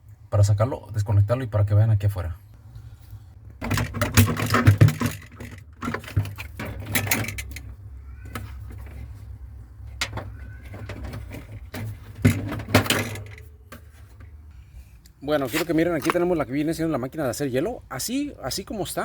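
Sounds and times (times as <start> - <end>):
plastic and metal clattering: 3.6 - 14.5.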